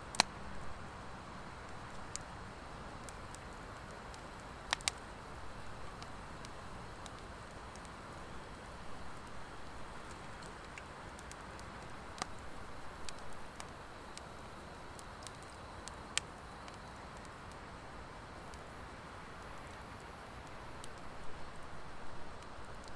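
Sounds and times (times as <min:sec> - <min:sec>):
wood fire crackling: 0:00.0 - 0:22.9
sharp pops of fire: 0:03.0 - 0:17.7.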